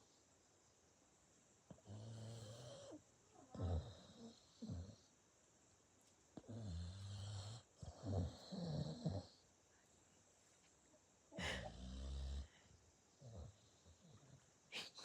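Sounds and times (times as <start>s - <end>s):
dog snoring: 1.7s - 5.1s, 6.4s - 9.4s, 11.6s - 12.6s, 13.2s - 14.4s.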